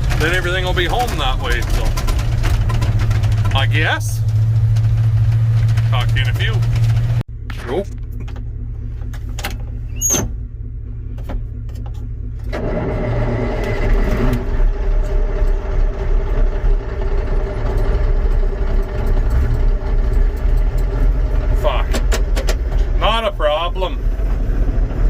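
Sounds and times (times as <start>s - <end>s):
truck engine rumbling: 0.0s - 25.0s.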